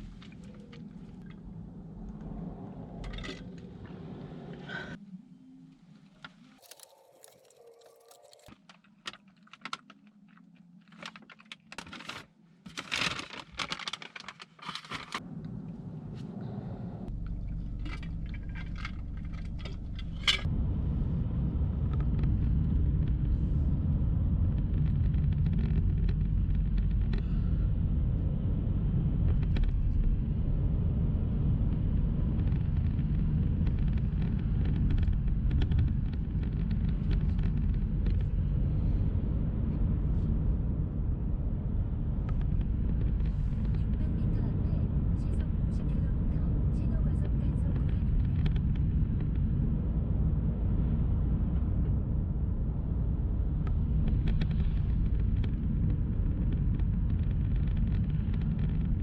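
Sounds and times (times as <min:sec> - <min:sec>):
clicks and handling noises: 0:06.2 - 0:15.6, 0:17.1 - 0:20.5
loud vehicle rumble: 0:15.2 - 0:57.1.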